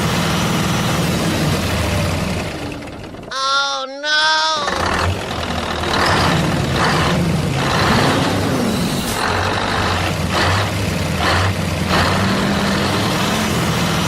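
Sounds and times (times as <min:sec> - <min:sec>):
vehicle engine running: 0:00.0 - 0:03.3, 0:04.6 - 0:14.0.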